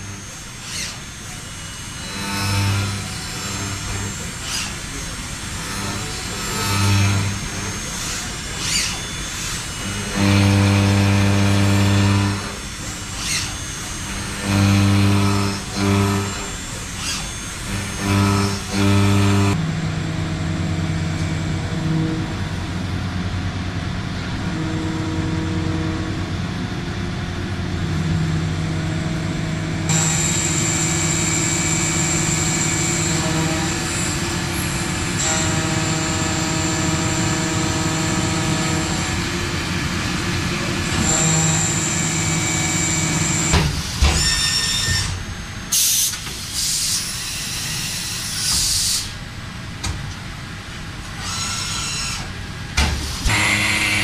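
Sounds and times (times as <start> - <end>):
heavy machinery humming: 0.0 - 46.6, 49.2 - 54.0
hiss of air or steam: 45.7 - 47.7, 48.5 - 49.2.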